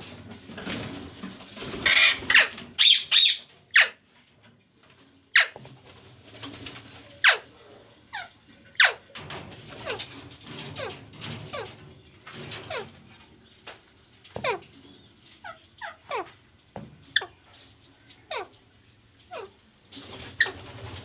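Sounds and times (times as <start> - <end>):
parrot squawks: 1.8 - 4.0, 5.3 - 5.6, 7.2 - 7.5, 8.1 - 9.0.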